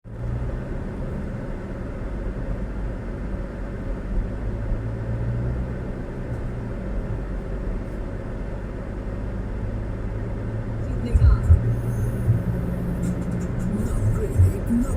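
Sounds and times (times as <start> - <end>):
engine and road rumble: 0.0 - 14.9
constant hum: 6.0 - 14.9.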